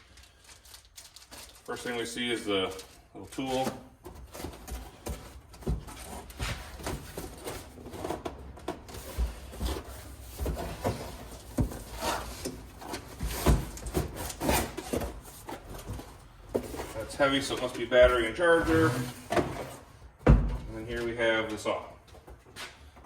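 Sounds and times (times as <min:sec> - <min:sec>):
packaging rustling: 0:00.0 - 0:17.1
knocks and clunks of items: 0:02.7 - 0:21.1.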